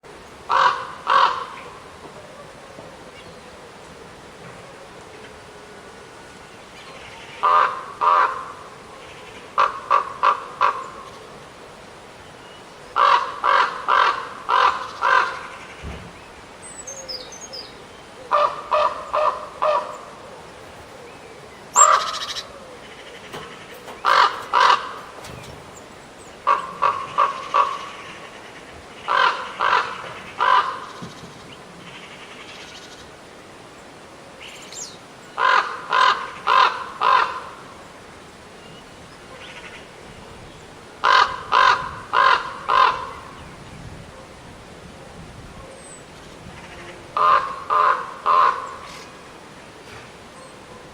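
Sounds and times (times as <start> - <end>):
crow cawing: 0.5 - 1.8, 7.3 - 8.7, 9.4 - 11.1, 13.0 - 15.6, 18.3 - 21.0, 21.7 - 31.2, 35.4 - 37.6, 41.0 - 43.3, 47.2 - 49.0.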